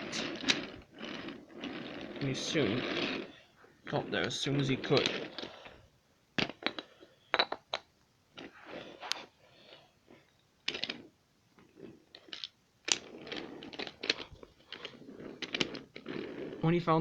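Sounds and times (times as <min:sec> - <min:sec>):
wooden toy train clicking: 0:03.9 - 0:05.6, 0:12.1 - 0:16.1.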